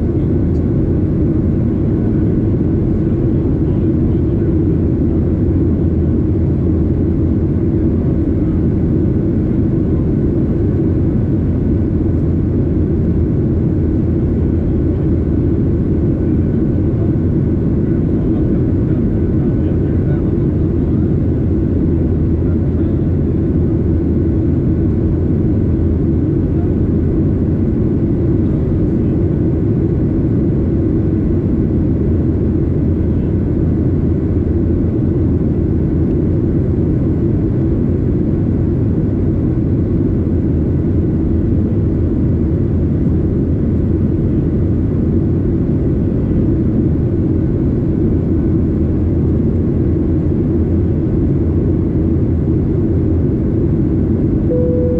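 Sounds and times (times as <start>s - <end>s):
jet engines and airflow rumbling: 0.0s - 54.9s
faint whining tones: 54.5s - 54.9s.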